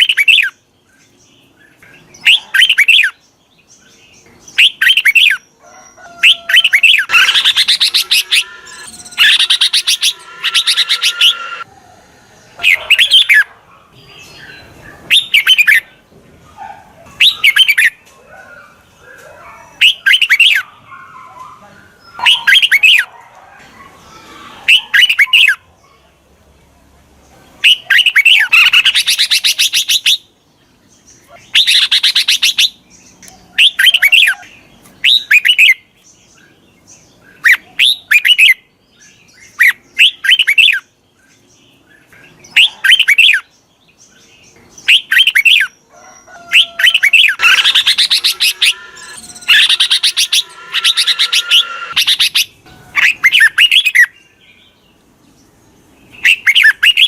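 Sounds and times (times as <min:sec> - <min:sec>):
bulbul calling: 0:06.2 - 0:11.7, 0:46.4 - 0:54.1.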